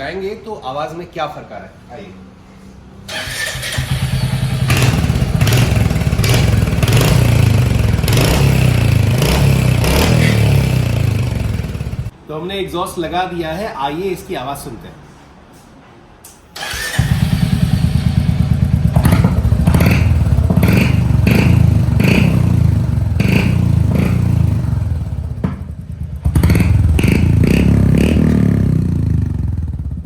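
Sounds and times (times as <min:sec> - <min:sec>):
motorcycle engine revving: 0:03.1 - 0:12.1, 0:16.6 - 0:30.0.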